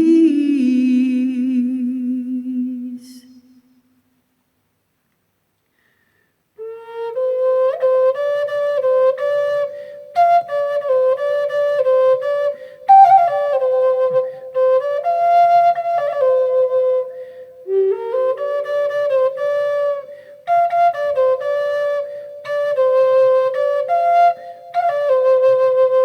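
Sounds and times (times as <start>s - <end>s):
flute-like wind instrument melody: 6.6s - 26.0s.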